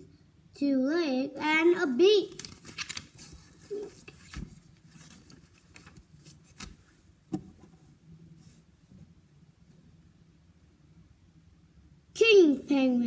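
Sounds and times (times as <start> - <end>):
paper book rustling: 2.2 - 7.7.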